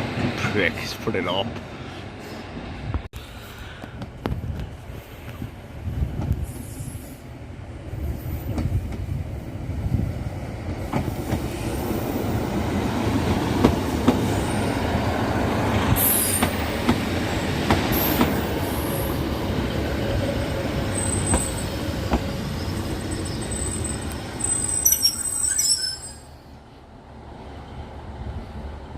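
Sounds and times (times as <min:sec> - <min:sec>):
train rumbling: 0:00.0 - 0:28.9
wheel squeals: 0:22.5 - 0:26.5.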